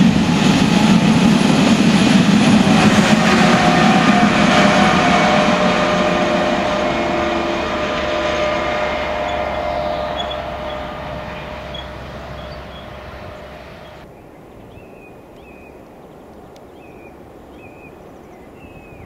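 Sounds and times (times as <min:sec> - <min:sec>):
electric train rumble: 0:00.0 - 0:14.1
bird chirping: 0:09.4 - 0:19.0.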